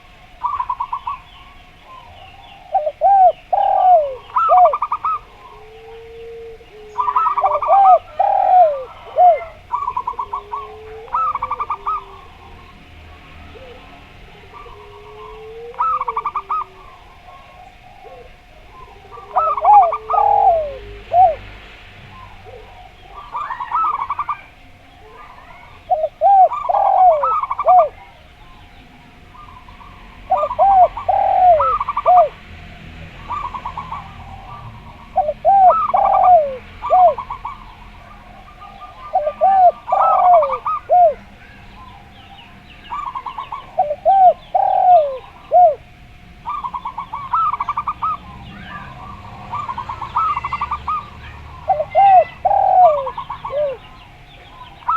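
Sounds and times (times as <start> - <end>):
doves cooing: 0.0 - 54.9.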